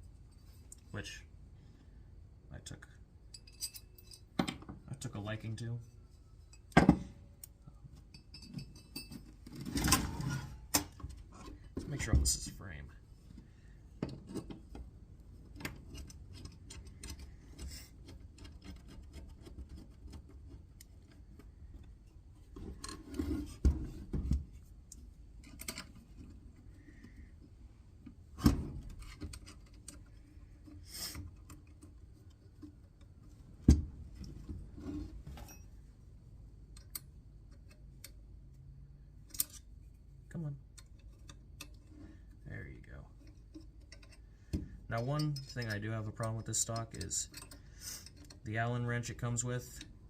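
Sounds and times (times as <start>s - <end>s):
allen wrench clicks and scrapes: 3.3s - 4.3s, 15.4s - 23.6s, 39.2s - 39.7s, 43.1s - 44.3s, 45.0s - 49.9s.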